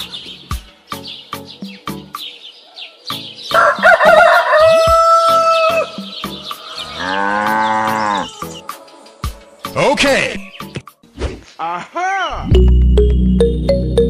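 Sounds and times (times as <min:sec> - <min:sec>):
background music with steady beat: 0:00.0 - 0:02.4, 0:03.1 - 0:11.2, 0:12.4 - 0:14.0
rooster crowing: 0:03.5 - 0:08.7
cow mooing: 0:06.7 - 0:08.6.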